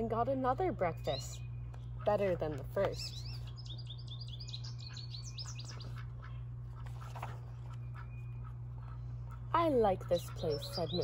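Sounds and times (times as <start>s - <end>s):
steady low hum: 0.0s - 11.0s
small songbird chirping: 0.5s - 2.2s, 2.8s - 6.5s, 10.0s - 11.0s.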